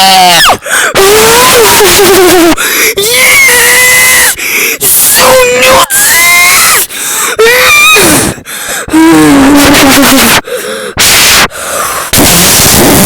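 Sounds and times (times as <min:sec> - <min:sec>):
high squealing voice: 0:00.0 - 0:02.3, 0:03.1 - 0:06.8, 0:12.2 - 0:13.0.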